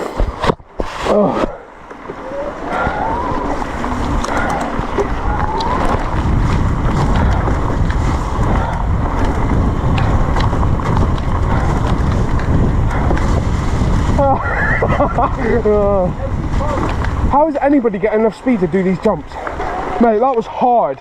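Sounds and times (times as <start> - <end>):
bike tyres on muddy trail: 0.0 - 21.0
wind buffeting microphone: 1.5 - 21.0
bike clicks and rattles: 1.8 - 20.5.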